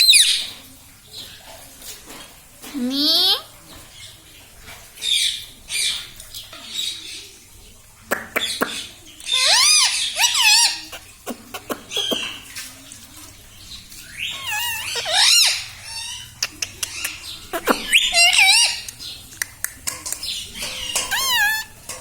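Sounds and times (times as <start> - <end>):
parrot warbling calls: 9.3 - 12.4, 14.1 - 19.0, 20.6 - 22.0.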